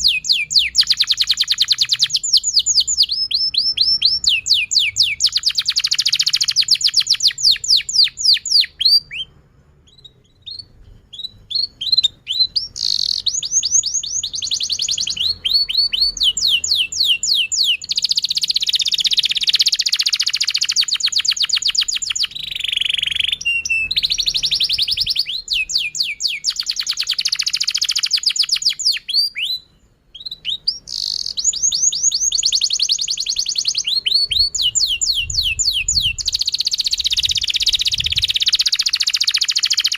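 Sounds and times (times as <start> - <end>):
canary chirps: 0.0 - 39.9
canary singing trills: 0.0 - 39.9.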